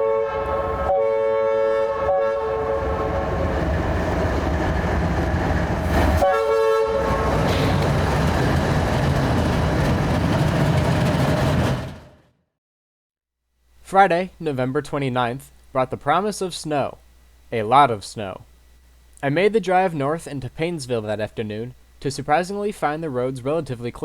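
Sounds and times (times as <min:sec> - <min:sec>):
locomotive horn blasts: 0:00.0 - 0:03.4, 0:06.2 - 0:07.6
freight train rumble and rail clatter: 0:02.5 - 0:12.3.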